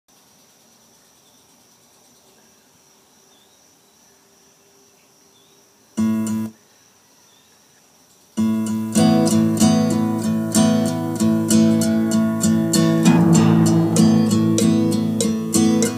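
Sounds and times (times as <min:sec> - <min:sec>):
rhythmic acoustic guitar strumming: 0:12.8 - 0:15.8
acoustic guitar chord: 0:12.8 - 0:15.9
steady high tone: 0:12.9 - 0:15.6.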